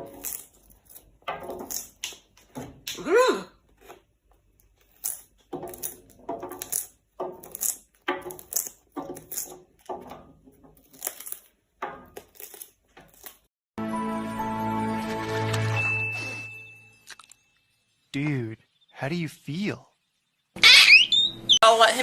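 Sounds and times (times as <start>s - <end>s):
parrot crunching a snack: 0.0s - 2.3s, 3.7s - 9.6s, 10.8s - 11.5s, 12.1s - 13.5s
music: 13.8s - 17.0s.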